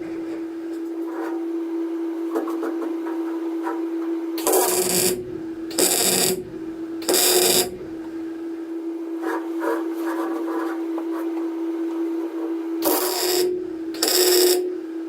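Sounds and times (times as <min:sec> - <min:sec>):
welder hum: 0:00.0 - 0:15.0
welder crackling: 0:02.2 - 0:08.2, 0:12.8 - 0:14.8.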